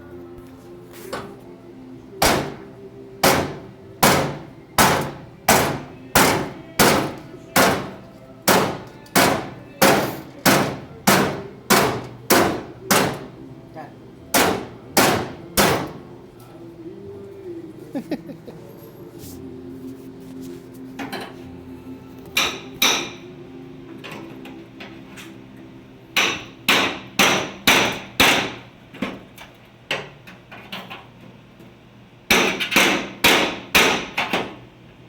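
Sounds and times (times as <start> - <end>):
hammer striking metal car part: 2.2 - 13.4, 14.3 - 16.1, 22.4 - 23.2, 26.2 - 29.2, 32.3 - 34.6.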